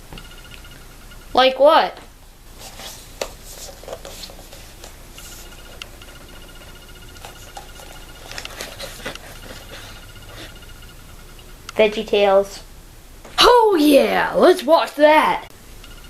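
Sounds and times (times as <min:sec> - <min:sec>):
faint clicks and rustles: 0:02.5 - 0:11.5.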